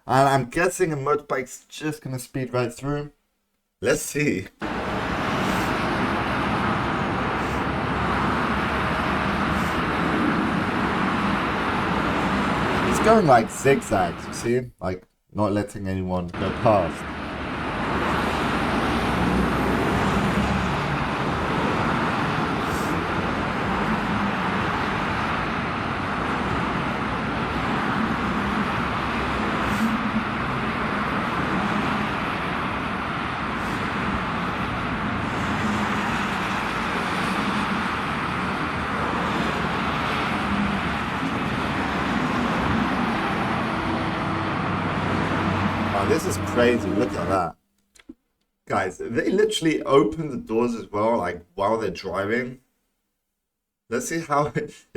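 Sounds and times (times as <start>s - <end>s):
highway traffic rush: 4.6s - 14.6s, 16.3s - 47.5s.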